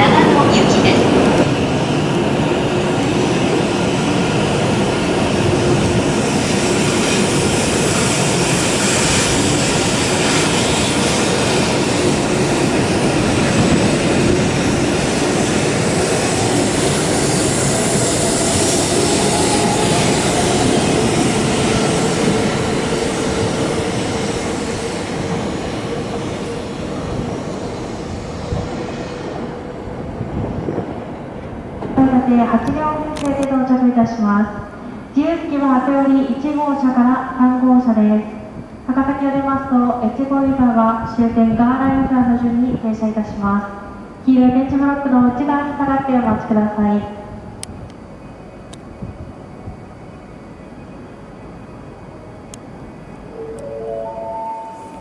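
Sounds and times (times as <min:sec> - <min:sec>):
train wheels and air rushing: 0:00.0 - 0:32.0.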